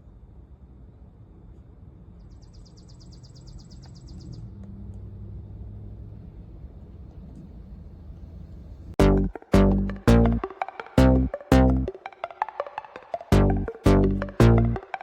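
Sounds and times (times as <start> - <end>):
rapid high-pitched trill: 9.0 - 15.0.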